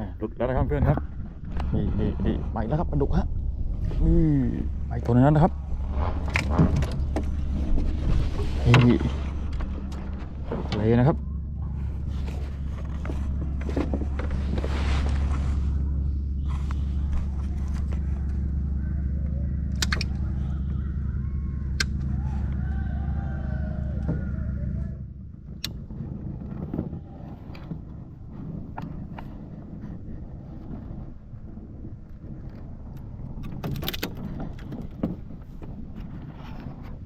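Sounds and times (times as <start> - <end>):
boat engine humming: 0.0 - 37.0
sharp clicks: 19.7 - 20.3.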